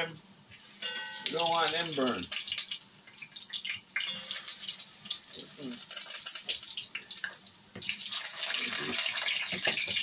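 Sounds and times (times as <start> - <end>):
plantain frying in hot oil: 0.0 - 10.0
metal utensil scraping a pot: 4.0 - 5.2.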